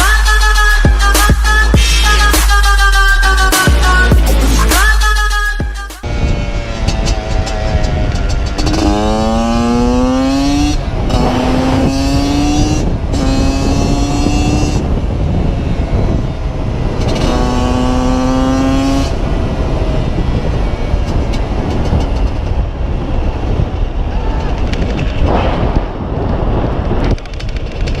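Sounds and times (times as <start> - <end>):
motorcycle engine accelerating: 6.0 - 28.0.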